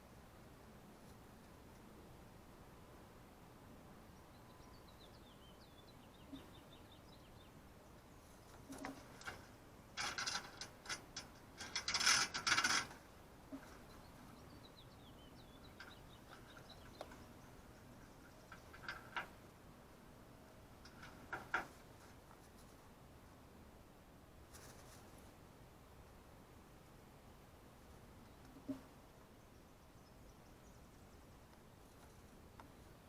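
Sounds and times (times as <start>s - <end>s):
faint bird chirps: 4.0s - 9.4s, 13.4s - 19.2s, 28.2s - 33.0s
rapid rattling and clicking: 8.5s - 14.0s, 18.0s - 19.5s.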